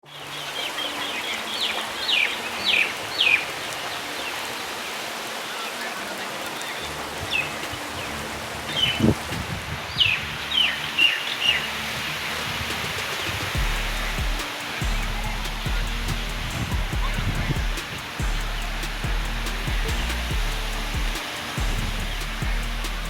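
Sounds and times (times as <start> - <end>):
bird chirping: 0.0 - 23.0
rain falling: 0.0 - 23.0.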